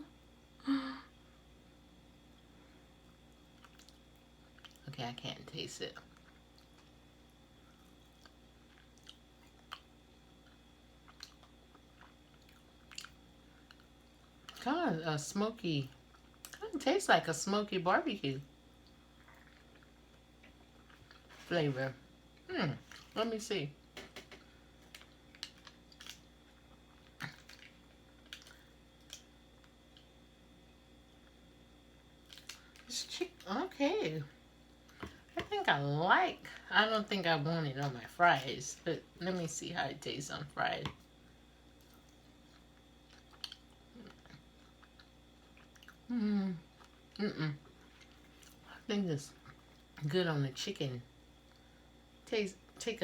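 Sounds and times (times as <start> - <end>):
person chewing with mouth clicks: 7.7 - 14.6, 18.8 - 21.3, 41.8 - 48.6
wet chewing mouth clicks: 10.5 - 13.9, 41.8 - 46.1.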